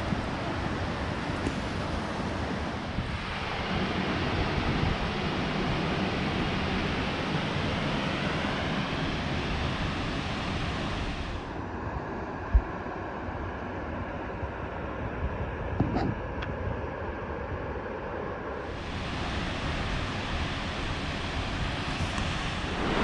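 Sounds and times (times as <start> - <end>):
waterfall roaring: 0.0 - 11.5, 18.6 - 23.0
wind on microphone: 0.0 - 17.9, 18.6 - 23.0.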